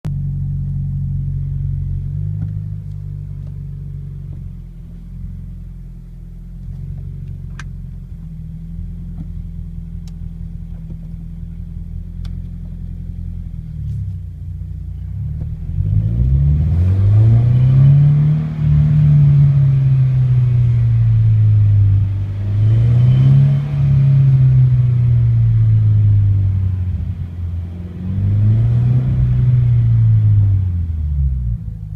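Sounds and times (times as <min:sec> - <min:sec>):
car engine accelerating: 0:00.1 - 0:31.9.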